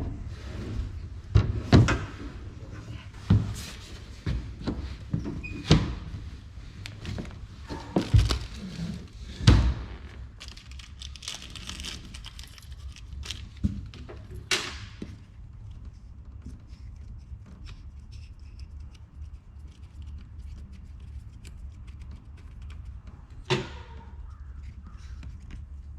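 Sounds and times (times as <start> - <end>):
knocks and thunks: 9.3 - 10.0.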